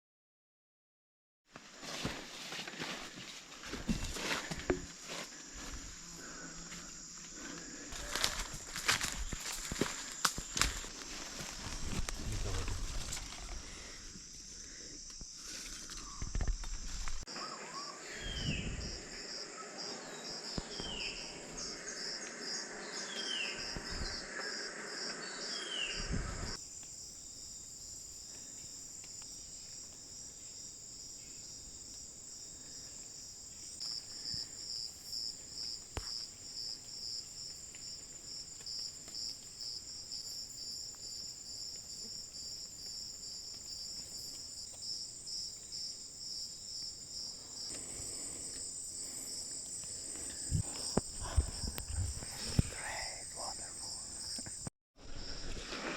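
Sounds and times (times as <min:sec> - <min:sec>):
insects trilling: 0:04.2 - 0:54.7
rustling: 0:08.0 - 0:14.0.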